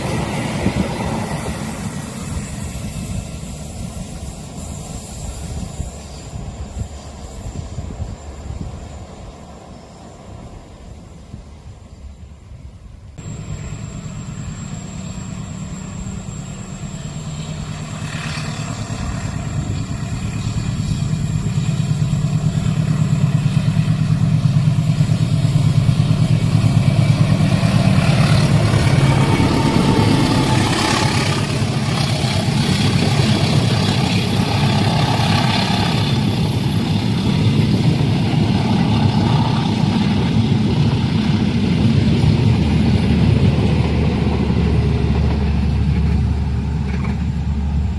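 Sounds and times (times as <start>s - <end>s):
heavy engine noise: 13.2s - 47.9s.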